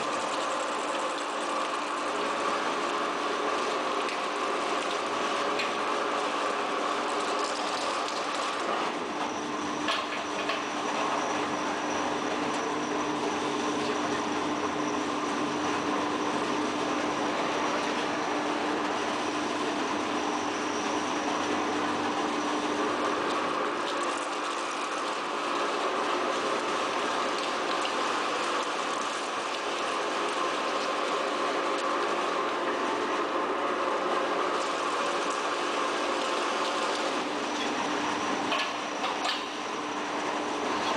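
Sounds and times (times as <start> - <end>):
high machine whine: 0.0 - 40.9
machinery din with hum: 7.6 - 23.8, 36.8 - 40.9.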